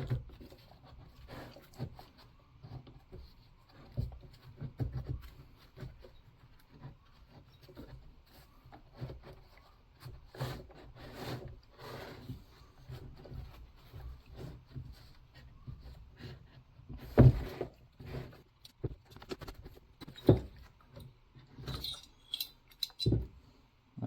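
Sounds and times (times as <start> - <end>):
tools knocking and scraping: 16.9 - 23.4.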